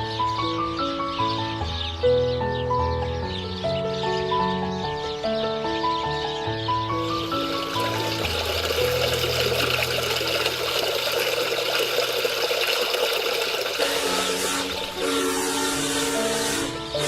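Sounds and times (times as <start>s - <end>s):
soft background music: 0.0s - 12.0s, 13.8s - 17.0s
rushing water: 7.1s - 15.3s.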